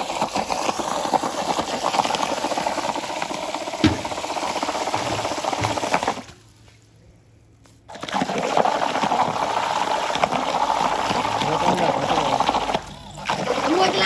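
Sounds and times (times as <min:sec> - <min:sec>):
water splashing and sloshing: 0:03.8 - 0:06.7.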